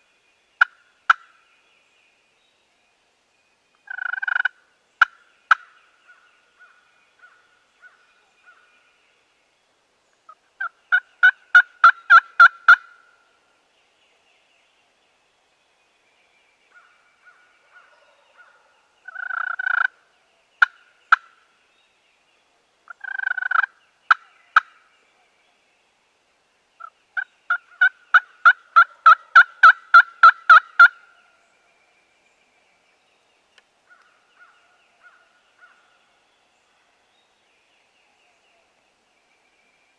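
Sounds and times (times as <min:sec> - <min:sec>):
turkey yelps: 0:27.5 - 0:31.0.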